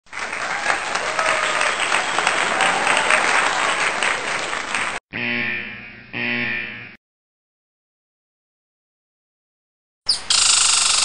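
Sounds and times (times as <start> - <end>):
crowd applause: 0.0 - 5.0.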